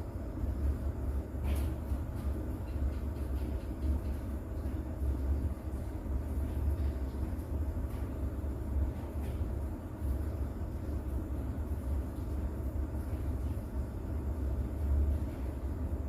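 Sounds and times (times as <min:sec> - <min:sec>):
steady rain: 0:04.4 - 0:16.0.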